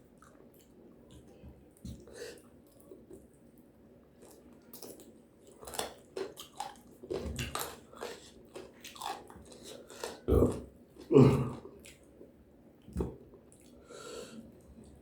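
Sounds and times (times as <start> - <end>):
person chewing crunchy food: 4.2 - 12.2.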